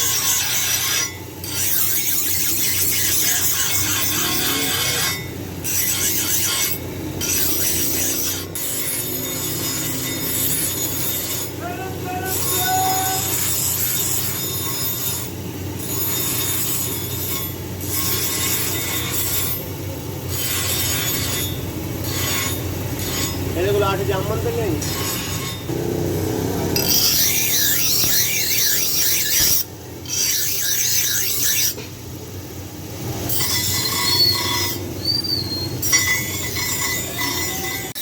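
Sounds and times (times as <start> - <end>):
abrasive grinding on a workpiece: 0.0 - 32.0, 33.0 - 38.0.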